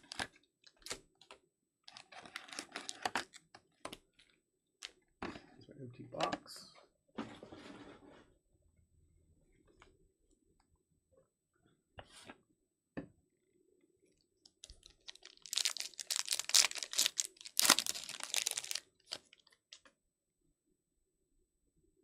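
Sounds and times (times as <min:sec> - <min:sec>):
wrapper tearing and crinkling: 0:14.6 - 0:19.5.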